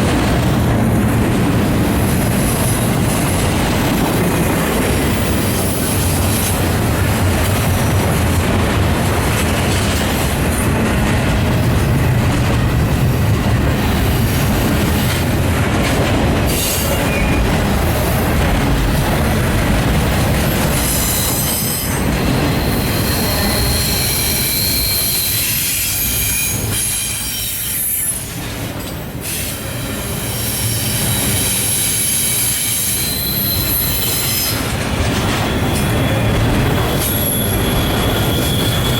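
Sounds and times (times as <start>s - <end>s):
train cars rumbling on rails: 0.0s - 38.9s
high-pitched wheel squeal: 22.6s - 28.2s, 30.6s - 34.6s, 35.5s - 38.9s.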